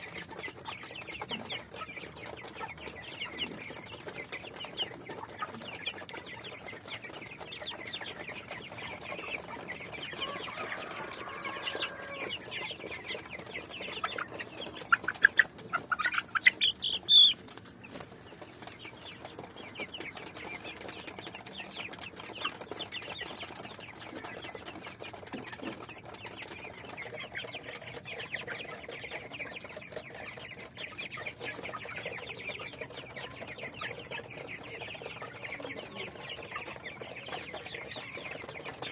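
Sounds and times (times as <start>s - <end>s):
chickens clucking: 0.0s - 38.9s
chicken squawking calls: 10.2s - 12.4s.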